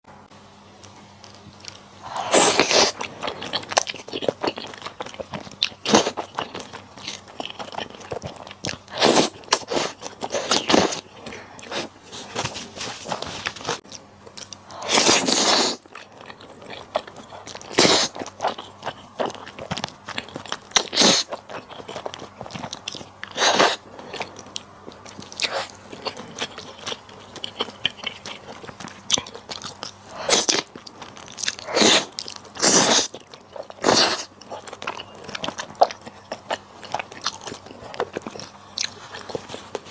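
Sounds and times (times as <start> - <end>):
person chewing crunchy food: 0.8 - 39.9.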